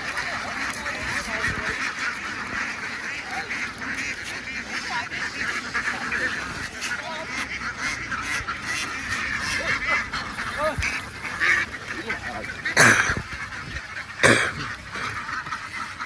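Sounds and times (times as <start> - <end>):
flock of ducks quacking: 0.0 - 16.0.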